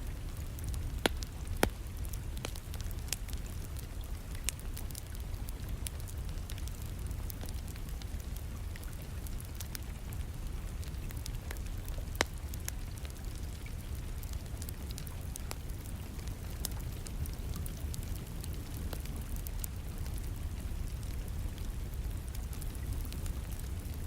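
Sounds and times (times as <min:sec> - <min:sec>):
rain: 0:00.0 - 0:24.0
wood fire crackling and popping: 0:00.0 - 0:24.0.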